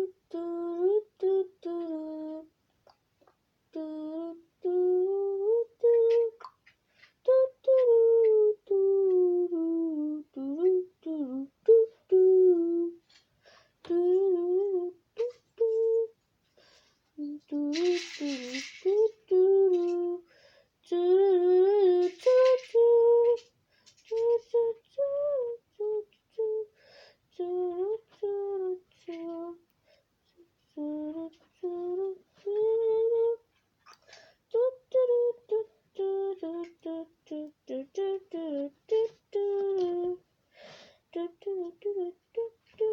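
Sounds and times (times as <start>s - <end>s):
person humming: 0.0s - 2.5s, 3.7s - 6.5s, 7.2s - 13.1s, 13.8s - 16.2s, 17.2s - 23.5s, 24.1s - 26.7s, 27.3s - 29.6s, 30.2s - 40.2s, 41.1s - 42.9s.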